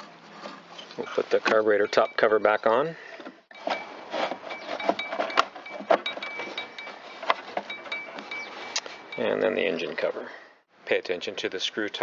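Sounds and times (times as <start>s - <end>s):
plastic parts clicking and knocking: 3.2s - 8.4s
rubbing and rustling: 3.6s - 9.1s.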